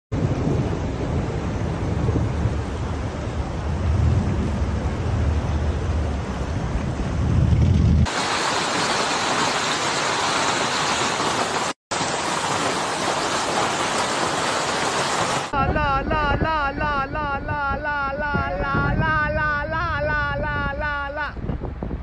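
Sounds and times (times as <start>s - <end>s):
thunder rumble: 0.1s - 9.6s
wind: 0.1s - 22.0s
heavy rain pouring: 8.0s - 15.6s.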